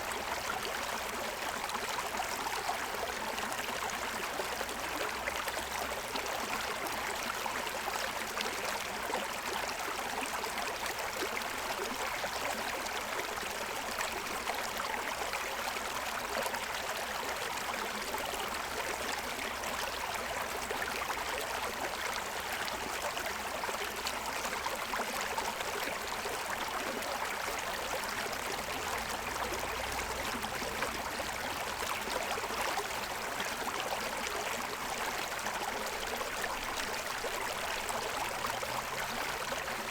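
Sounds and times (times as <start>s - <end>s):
stream water splashing over stones: 25.7s - 39.9s.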